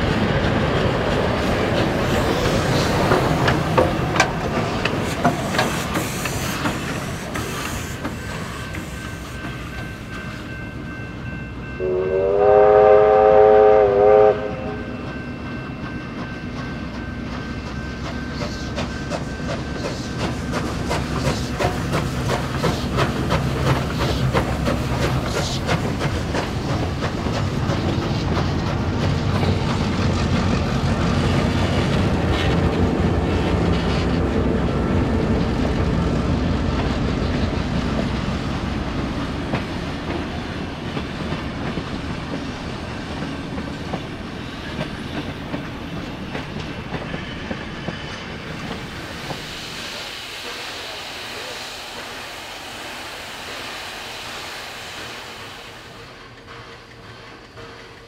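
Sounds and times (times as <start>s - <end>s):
train wheels clattering over rail joints: 0.0s - 10.6s, 16.2s - 34.2s, 36.6s - 50.4s, 54.6s - 58.0s
locomotive whistle blast: 11.8s - 15.0s.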